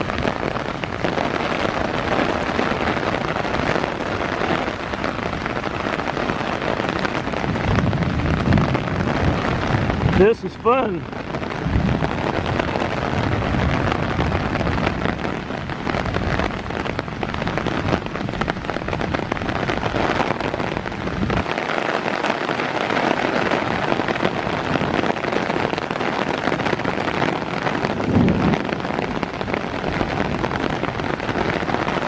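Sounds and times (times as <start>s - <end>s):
heavy rain pouring: 0.0s - 32.0s
low rumble: 28.0s - 30.5s.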